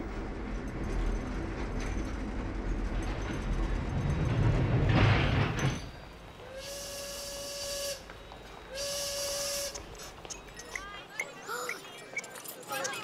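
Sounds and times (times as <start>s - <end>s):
train rumbling: 0.0s - 13.0s
steam whistle: 6.4s - 8.1s, 8.7s - 9.8s.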